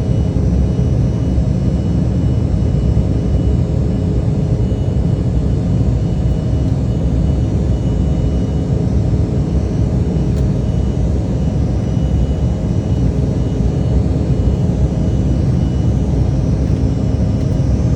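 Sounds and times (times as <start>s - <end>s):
faint whining tones: 0.0s - 17.9s
jet engines rumbling: 5.1s - 17.9s.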